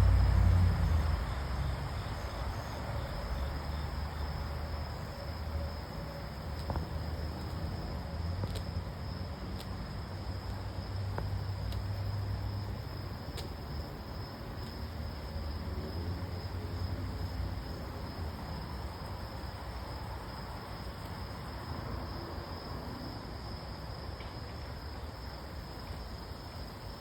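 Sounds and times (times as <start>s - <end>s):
passing vehicle: 0.0s - 13.1s
distant traffic rumble: 0.0s - 26.3s
high-pitched insect chorus: 0.0s - 27.0s
faint ticks: 10.4s - 11.9s.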